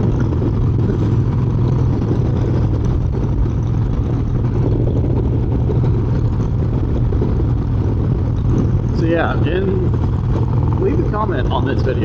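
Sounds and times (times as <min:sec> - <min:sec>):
motorcycle engine running: 0:00.0 - 0:12.0
wind rush on microphone: 0:00.0 - 0:12.0.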